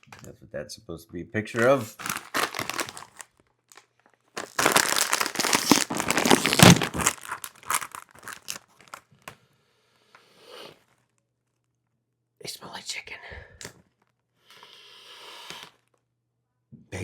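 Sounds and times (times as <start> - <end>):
bag tearing open: 1.6 - 9.1
chip bag crinkling: 1.6 - 9.1.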